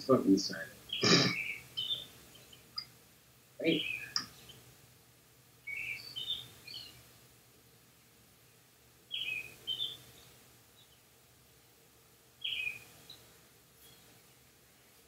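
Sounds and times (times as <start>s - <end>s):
bird chirping: 0.0s - 3.0s, 3.6s - 4.7s, 5.6s - 7.2s, 8.5s - 11.2s, 12.4s - 14.4s.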